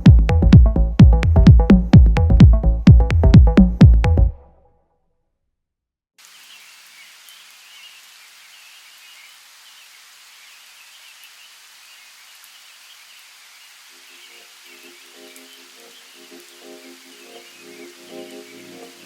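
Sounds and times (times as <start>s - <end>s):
electronic music: 0.0s - 4.4s
outdoor ambience hiss: 6.2s - 19.0s
faint bird chirping: 6.3s - 19.0s.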